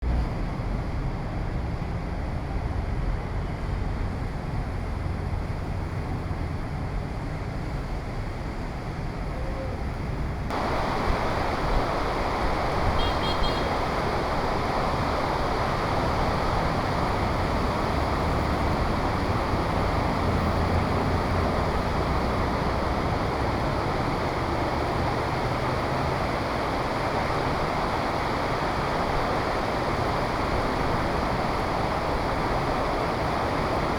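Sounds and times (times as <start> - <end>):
wind rumbling on microphone: 0.0 - 33.9
heavy rain hissing: 9.2 - 33.9.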